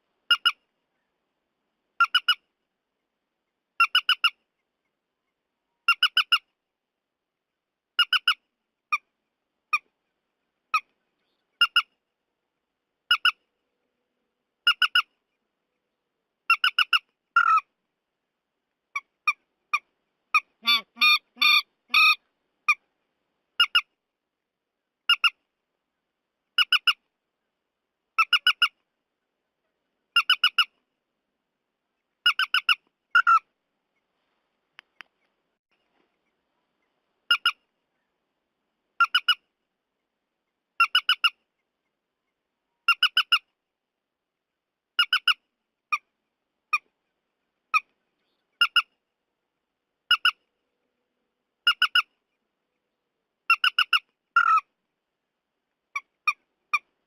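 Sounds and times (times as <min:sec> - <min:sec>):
wetland bird harsh calls: 0:20.4 - 0:22.2, 0:53.5 - 0:54.7.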